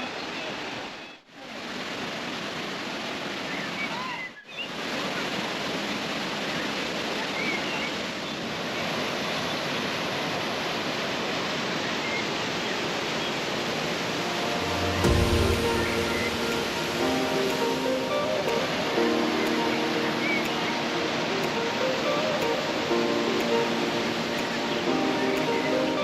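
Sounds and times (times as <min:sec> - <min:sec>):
waterfall rushing: 0:00.0 - 0:26.0
music: 0:13.7 - 0:26.0.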